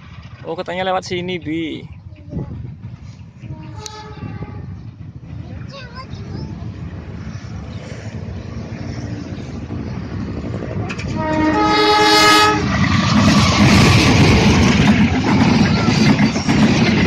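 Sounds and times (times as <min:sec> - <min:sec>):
train rumbling past: 0:00.0 - 0:17.0
train horn: 0:03.4 - 0:04.8, 0:11.0 - 0:12.7.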